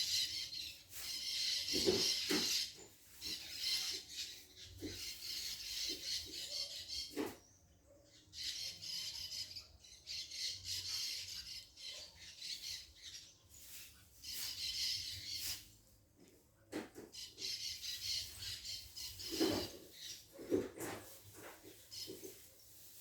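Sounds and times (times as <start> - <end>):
birds squawking harshly: 0.0 - 7.5.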